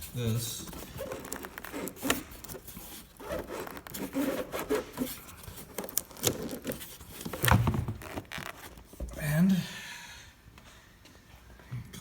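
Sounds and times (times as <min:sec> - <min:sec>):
plastic parts rubbing and scraping: 0:00.0 - 0:09.0.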